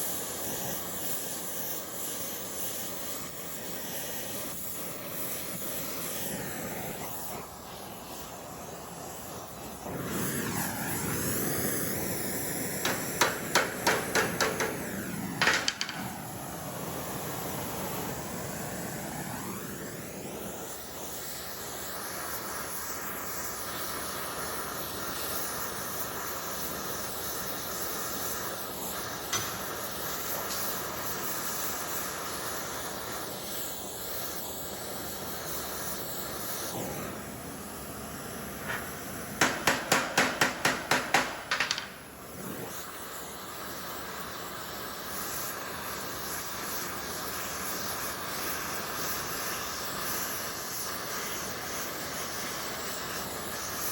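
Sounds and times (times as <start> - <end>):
steady hiss: 0.0 - 53.9
hammer ringing on metal: 39.4 - 41.8.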